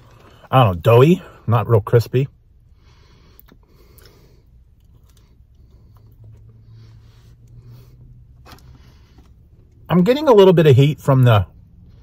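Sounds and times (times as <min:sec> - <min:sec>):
steady low hum: 0:00.0 - 0:12.0
faint chewing: 0:03.2 - 0:06.6.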